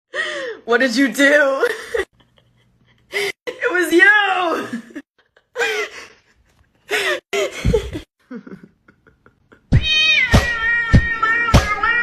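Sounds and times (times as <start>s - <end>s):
cat meowing: 9.7s - 12.0s
music with a steady beat: 9.8s - 12.0s.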